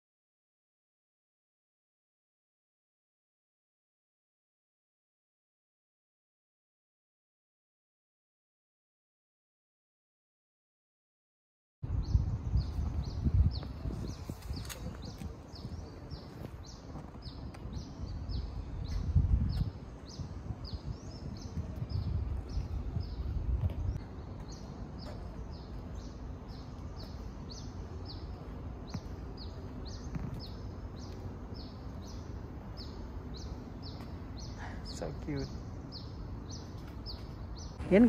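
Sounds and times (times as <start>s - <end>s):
bird chirping: 11.9s - 38.0s.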